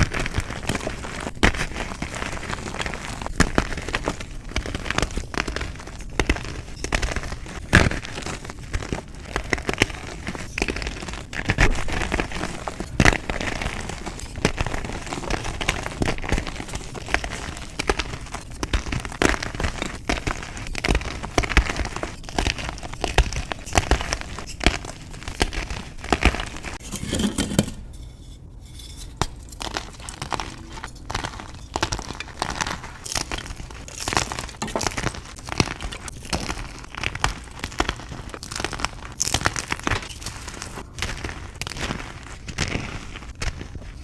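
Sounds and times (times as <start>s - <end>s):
chalk crushing and crumbling: 0.0s - 44.0s.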